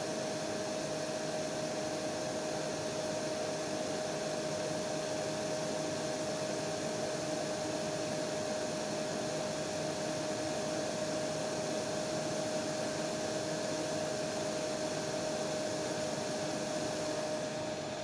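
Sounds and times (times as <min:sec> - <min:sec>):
hair dryer running: 0:13.4 - 0:18.0.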